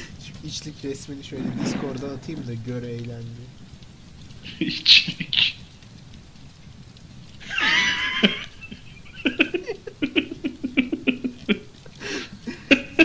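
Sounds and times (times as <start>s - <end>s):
person laughing: 4.4s - 5.6s, 7.4s - 13.0s.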